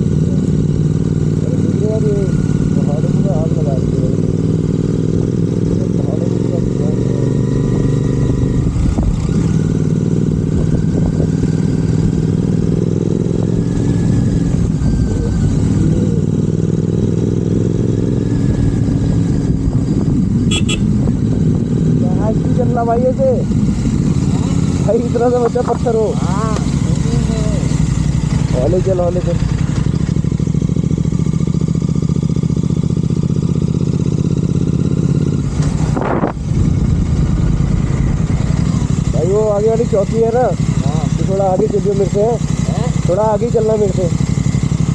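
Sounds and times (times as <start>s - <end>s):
motorcycle engine cruising: 0.0s - 44.9s.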